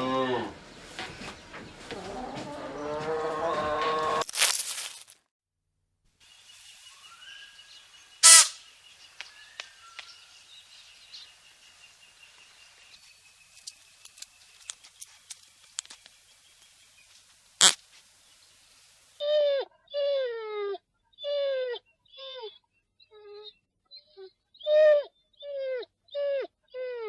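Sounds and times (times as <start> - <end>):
high bird-like chirping: 6.3 - 17.8
loud sharp noises: 8.2 - 8.7.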